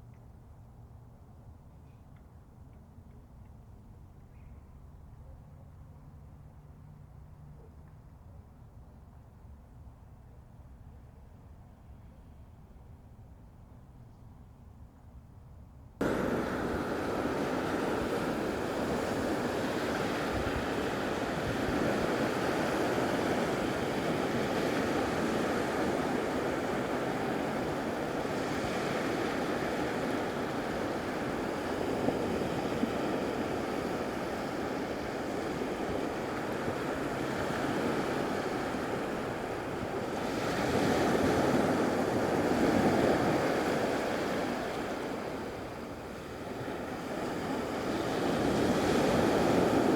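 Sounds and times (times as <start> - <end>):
wind buffeting microphone: 16.0 - 46.1
waves breaking on beach: 16.0 - 49.9.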